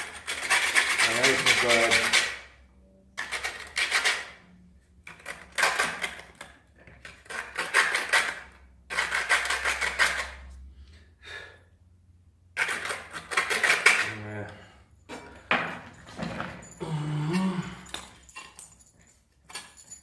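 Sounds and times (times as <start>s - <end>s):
metal hand tools clattering: 12.6s - 20.0s.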